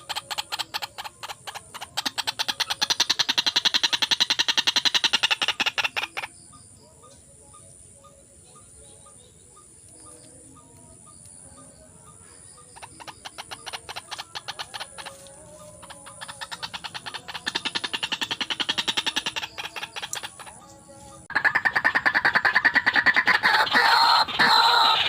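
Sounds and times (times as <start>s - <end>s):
waterhen calling rapid repeated notes: 0.0s - 6.4s, 12.7s - 25.0s.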